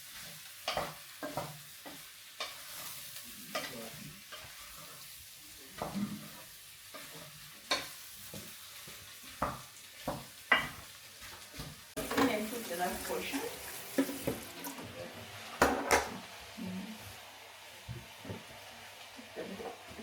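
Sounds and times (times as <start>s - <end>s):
potatoes sizzling in hot oil: 0.0s - 20.0s
cookware knocks and clinks: 9.4s - 10.8s, 15.6s - 16.2s.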